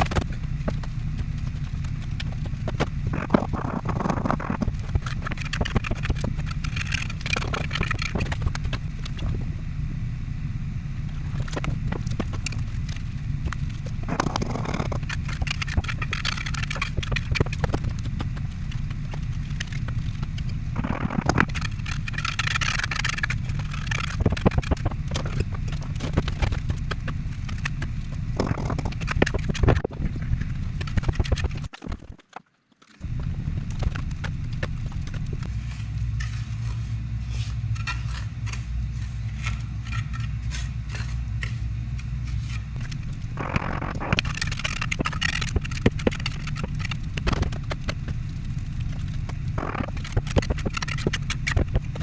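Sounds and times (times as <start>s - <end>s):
low rumble: 0.0s - 32.2s, 33.0s - 52.0s
trowel scraping mortar: 35.4s - 43.0s.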